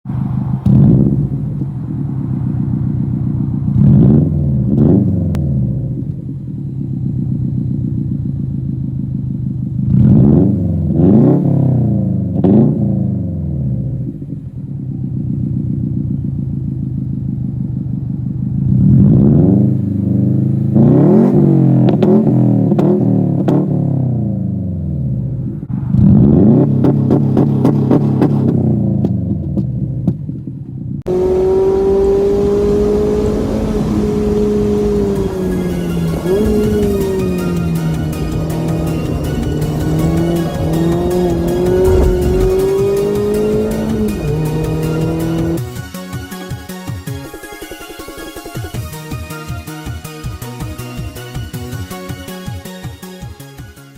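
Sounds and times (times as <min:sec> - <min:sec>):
exhaust crackles: 0:00.0 - 0:46.3
car engine revving: 0:00.0 - 0:49.1.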